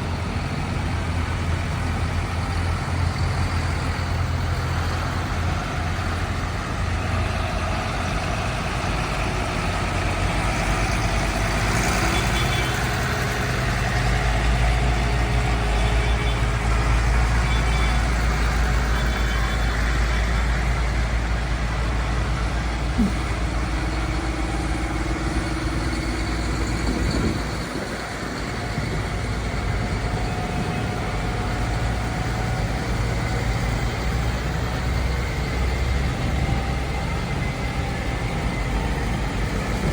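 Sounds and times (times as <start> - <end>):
tractor engines running: 0.0 - 39.9.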